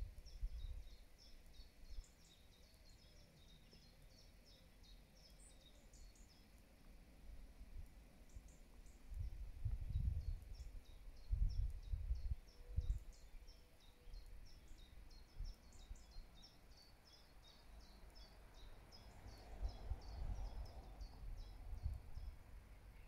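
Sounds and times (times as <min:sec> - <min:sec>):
small bird chirping: 0:00.0 - 0:07.0, 0:07.7 - 0:23.0
wind buffeting microphone: 0:09.1 - 0:13.1, 0:19.6 - 0:22.5.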